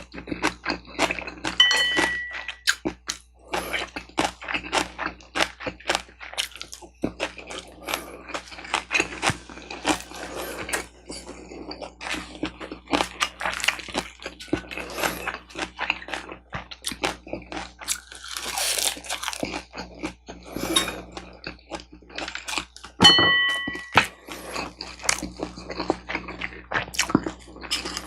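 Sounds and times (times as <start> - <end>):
ringing clink: 1.6 - 2.6, 23.1 - 24.0
crunchy bites and chewing: 2.6 - 20.2, 24.3 - 28.0.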